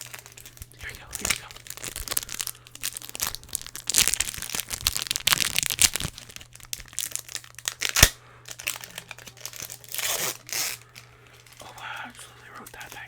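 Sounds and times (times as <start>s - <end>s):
cards being handled: 0.0s - 13.0s
foil wrapper crinkling: 0.0s - 13.0s.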